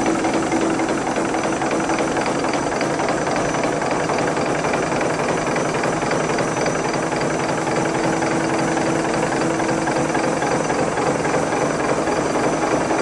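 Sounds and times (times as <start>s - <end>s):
fast mechanical clatter: 0.0s - 13.0s.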